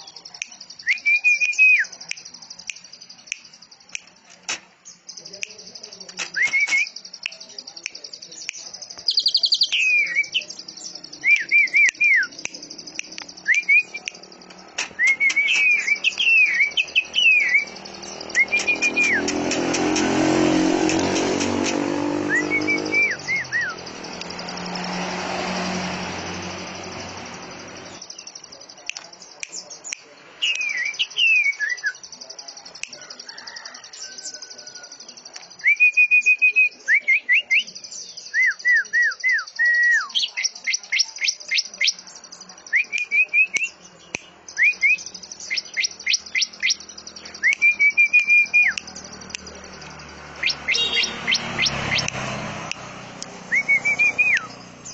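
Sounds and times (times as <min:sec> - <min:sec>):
songbird singing: 0:00.0 - 0:54.9.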